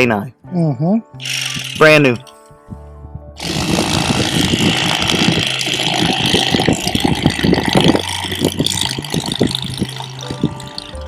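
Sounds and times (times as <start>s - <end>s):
electric fillet knife buzzing: 3.4s - 8.6s.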